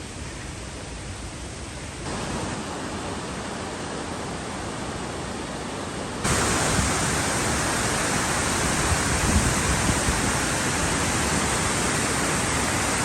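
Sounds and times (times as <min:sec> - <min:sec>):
waterfall roaring: 0:02.0 - 0:13.0.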